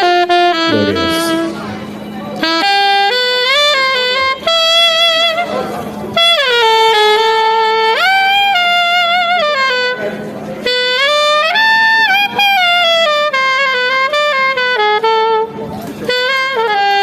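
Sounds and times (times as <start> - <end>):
solo saxophone melody: 0.0 - 17.0.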